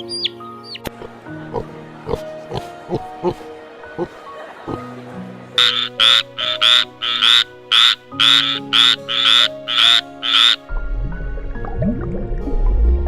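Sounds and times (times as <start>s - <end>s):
background music: 0.0s - 13.0s
animal rasping calls: 5.6s - 10.7s.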